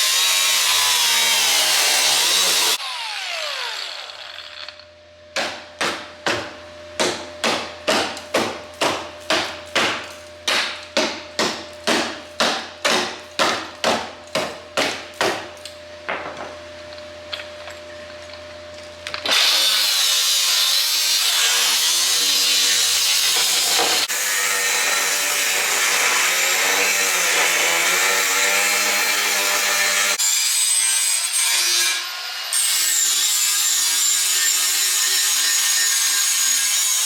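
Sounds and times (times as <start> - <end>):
power tool winding down: 0.0 - 4.9.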